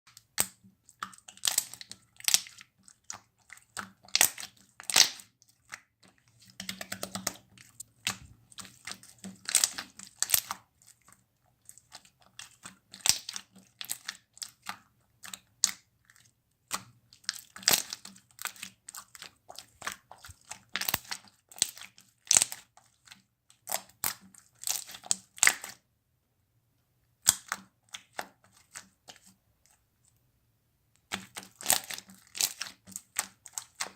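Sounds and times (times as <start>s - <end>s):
slime squeezed clicking and popping: 4.1s - 5.3s, 27.2s - 28.2s.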